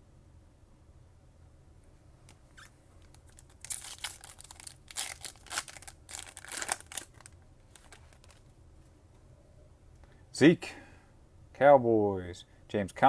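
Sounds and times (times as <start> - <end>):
foil wrapper crinkling and tearing: 2.6 - 8.5.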